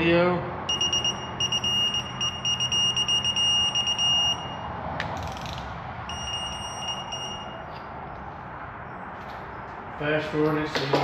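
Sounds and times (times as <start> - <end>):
torque wrench beeping: 0.7 - 4.6, 6.1 - 7.9.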